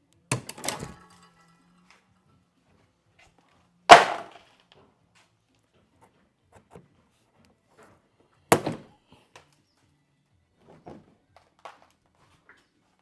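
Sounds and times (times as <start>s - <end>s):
tools and parts clattering: 0.3s - 2.0s.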